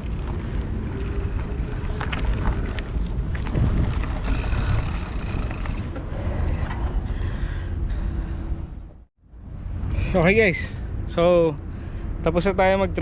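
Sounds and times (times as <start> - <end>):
mountain bike tyres rumbling: 0.0 - 8.6
wind buffeting microphone: 0.0 - 10.5.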